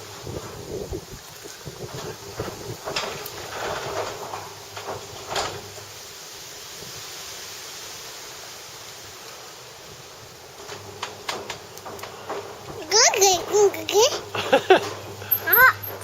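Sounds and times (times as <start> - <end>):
garage door motor humming: 0.0 - 6.2, 9.6 - 16.0.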